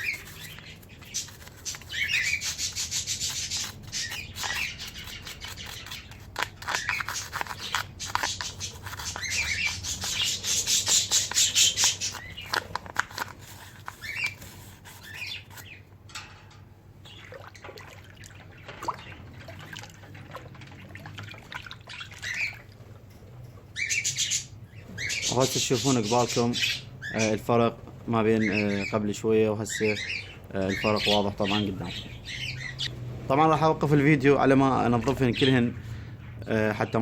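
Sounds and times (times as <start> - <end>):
toothbrush scrubbing: 0.0 - 15.7
small birds chirping: 0.0 - 16.0, 17.0 - 19.8, 21.2 - 22.7, 23.7 - 37.0.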